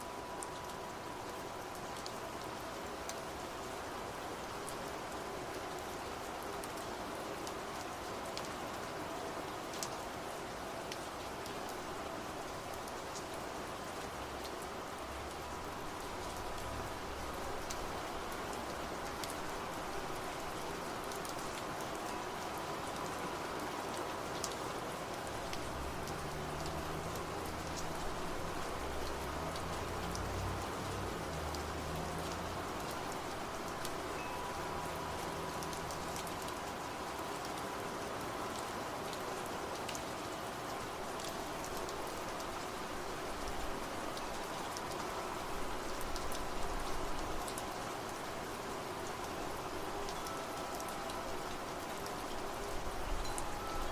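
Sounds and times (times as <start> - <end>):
rain drops ticking on a surface: 0.0 - 53.9.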